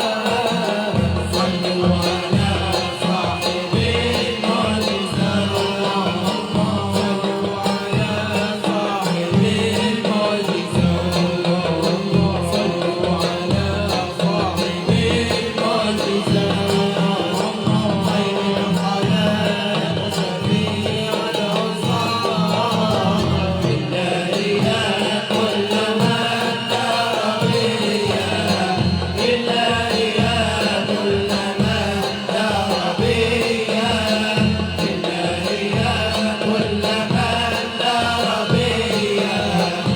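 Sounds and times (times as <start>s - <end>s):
hand drums: 0.0s - 39.9s
voices singing together: 0.0s - 39.9s.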